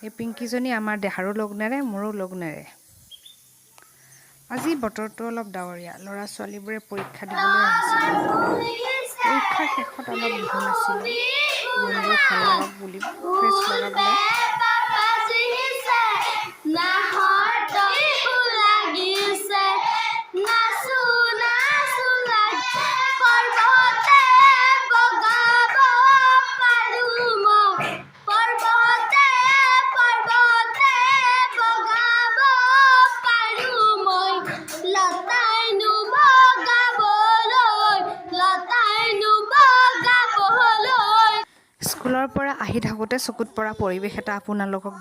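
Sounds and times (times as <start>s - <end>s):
children singing: 7.2s - 41.5s.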